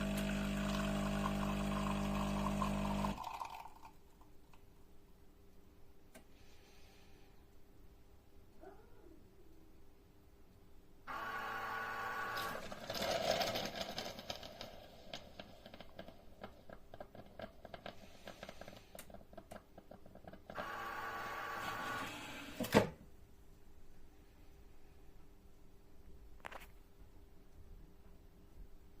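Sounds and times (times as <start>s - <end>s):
coffee machine motor hum: 0.0s - 3.4s, 11.1s - 12.8s, 20.5s - 22.6s
coffee machine whir: 0.0s - 3.8s, 11.1s - 14.4s, 20.5s - 22.8s.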